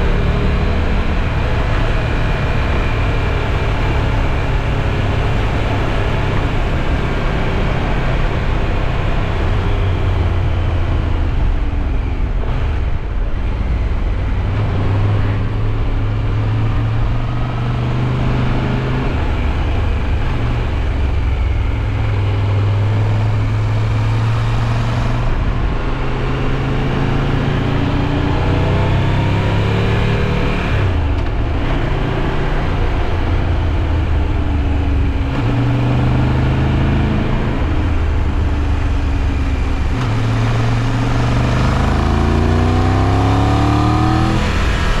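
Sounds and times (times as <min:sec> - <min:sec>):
wind and road noise: 0:00.0 - 0:45.0
motorcycle engine running: 0:30.8 - 0:45.0.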